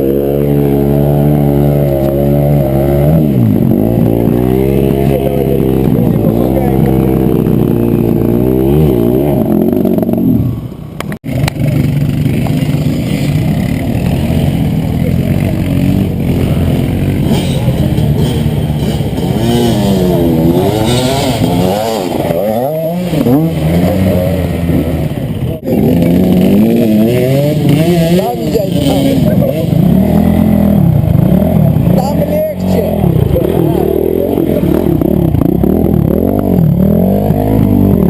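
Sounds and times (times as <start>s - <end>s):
motorcycle engines revving: 0.0s - 38.0s.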